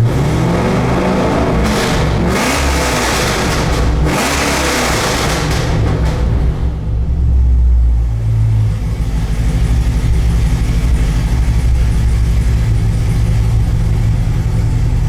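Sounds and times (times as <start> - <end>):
car engine deep rumble idling: 5.3 - 15.0.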